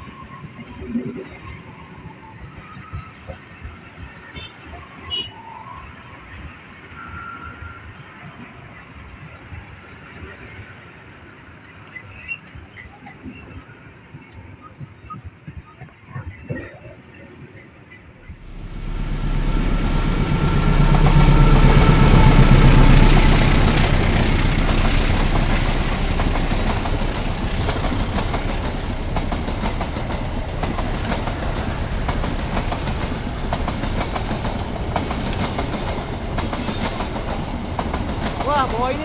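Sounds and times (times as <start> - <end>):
train rumble: 18.2 - 39.0
wheels clattering over rails: 18.4 - 39.0.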